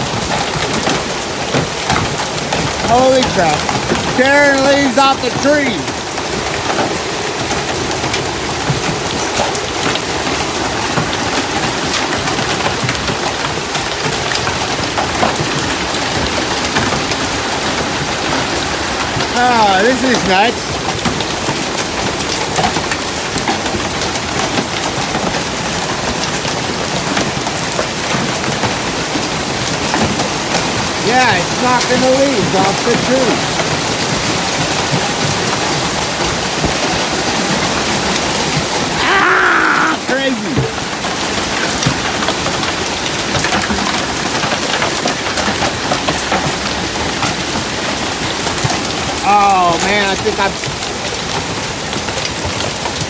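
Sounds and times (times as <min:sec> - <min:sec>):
hail and rain pelting down: 0:00.0 - 0:53.0.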